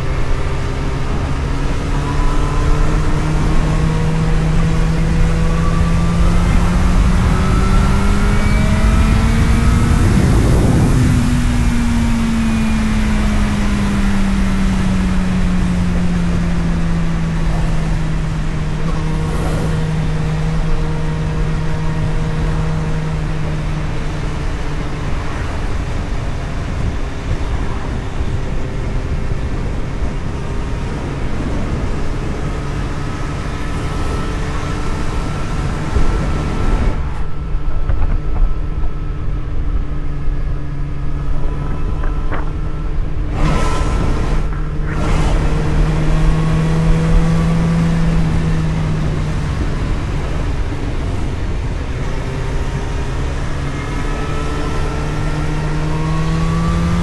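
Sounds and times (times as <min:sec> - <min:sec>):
road and wind noise: 0:00.0 - 0:57.0
vehicle engine hum: 0:00.0 - 0:57.0.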